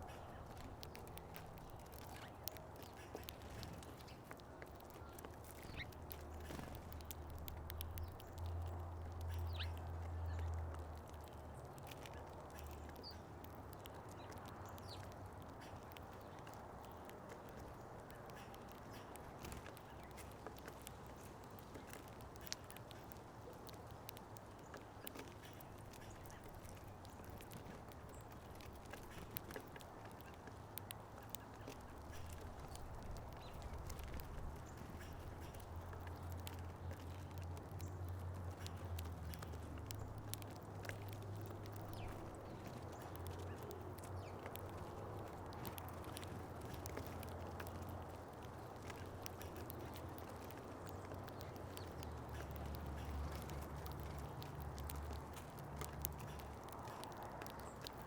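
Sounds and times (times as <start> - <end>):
birds pecking at seed: 0.0 - 58.0.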